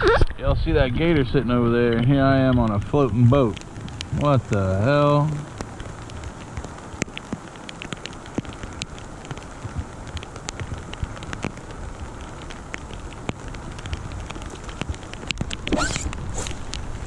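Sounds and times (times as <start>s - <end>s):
rain hissing on water: 0.0s - 17.0s
raindrops ticking near microphone: 0.0s - 17.0s.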